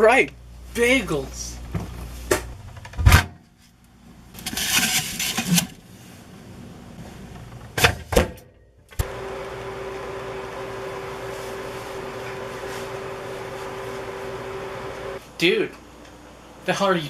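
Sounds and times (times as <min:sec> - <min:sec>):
microwave oven humming: 0:08.9 - 0:16.8.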